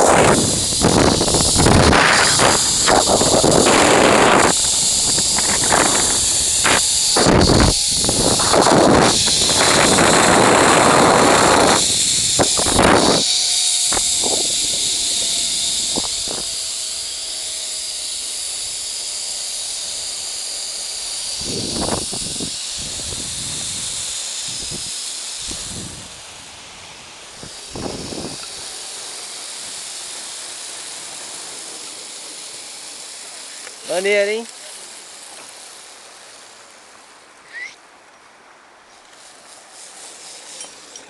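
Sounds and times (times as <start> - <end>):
wind buffeting microphone: 0.0 - 17.3, 21.3 - 28.8
zipline pulleys hissing on cable: 0.0 - 41.0.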